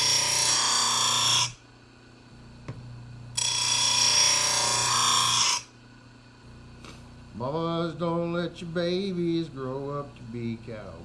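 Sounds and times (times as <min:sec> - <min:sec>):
grinder grinding steel blade: 0:00.0 - 0:01.6, 0:03.4 - 0:05.7.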